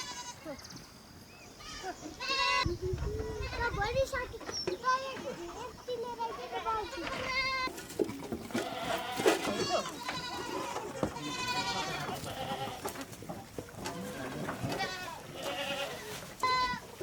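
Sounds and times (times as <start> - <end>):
goats bleating: 0.0 - 0.5, 1.6 - 2.7, 5.0 - 7.8, 8.5 - 13.0, 13.8 - 17.0.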